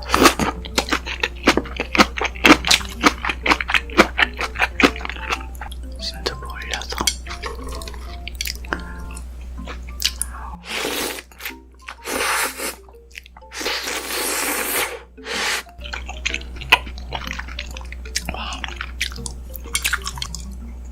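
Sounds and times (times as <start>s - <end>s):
wet chewing: 0.0s - 20.6s
soft background music: 0.0s - 20.9s
loud noodle slurps: 10.6s - 11.3s, 12.0s - 12.8s, 13.5s - 15.7s.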